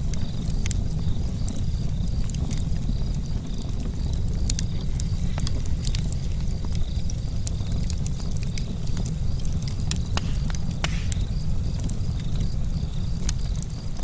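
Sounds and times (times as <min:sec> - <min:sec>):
charcoal fire crackling: 0:00.0 - 0:14.0.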